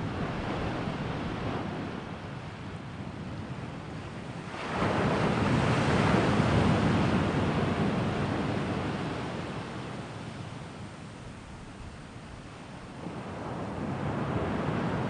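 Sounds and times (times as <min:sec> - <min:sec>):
sea waves on shore: 0:04.2 - 0:15.0.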